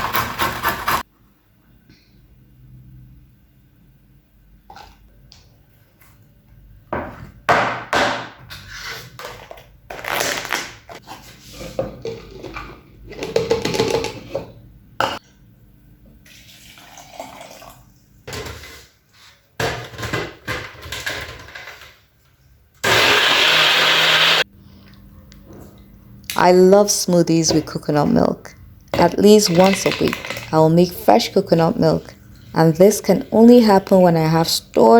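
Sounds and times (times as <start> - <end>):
water splashing and pouring: 16.3 - 17.9
bowls and utensils handled: 28.9 - 34.1.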